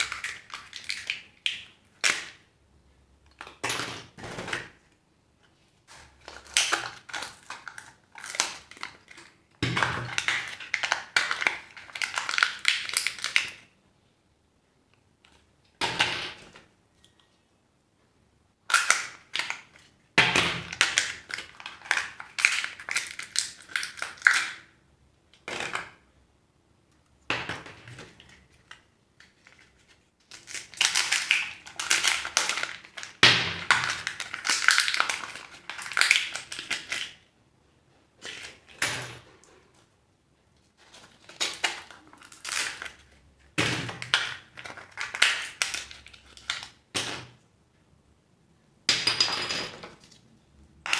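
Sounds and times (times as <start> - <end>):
plastic wrappers crinkling: 0.0 - 2.4, 5.9 - 13.7, 20.6 - 24.8, 27.9 - 37.3, 40.7 - 47.3.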